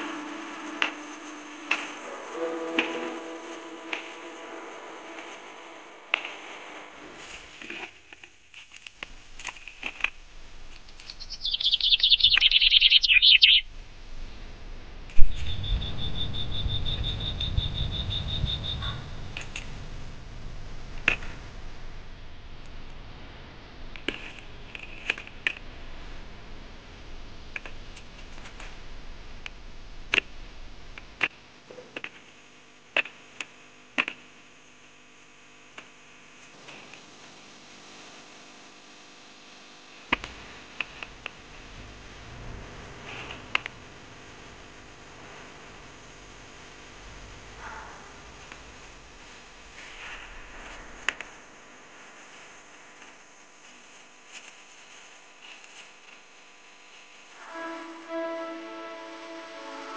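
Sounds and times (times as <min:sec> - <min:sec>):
bird chattering song: 0:10.9 - 0:13.6, 0:15.3 - 0:18.9.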